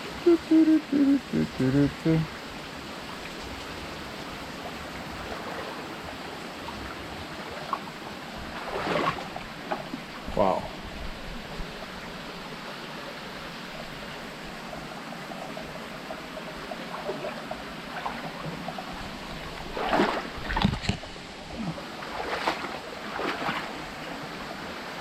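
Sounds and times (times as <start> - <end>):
water trickling and dripping: 0.2 - 12.8.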